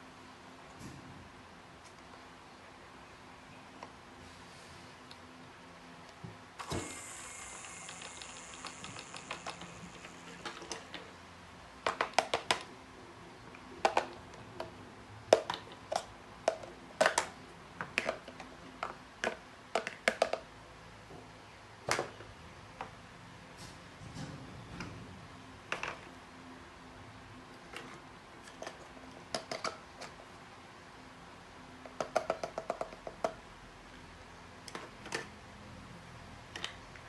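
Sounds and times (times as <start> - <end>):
high whine with fast ticking: 7.0 - 10.8.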